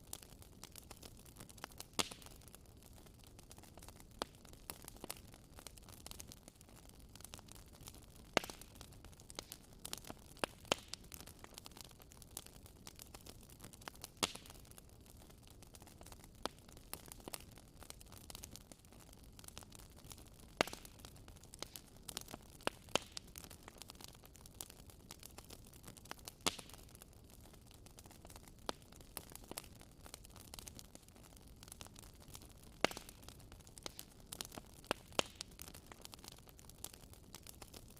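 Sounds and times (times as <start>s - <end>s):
faint steady hiss: 0.0s - 37.9s
fire crackling and popping: 0.0s - 37.9s.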